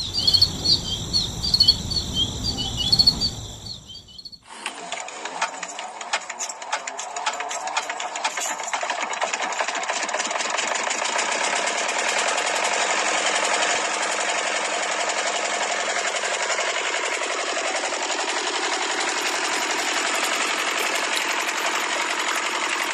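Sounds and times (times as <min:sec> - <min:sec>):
small motor running with clatter: 0:00.0 - 0:22.9.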